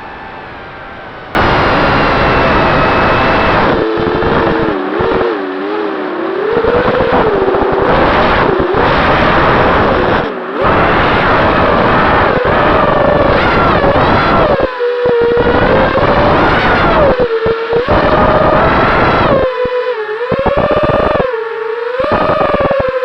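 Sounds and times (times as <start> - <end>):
drone motors whining: 0.0 - 3.7
wind rush: 0.0 - 3.8.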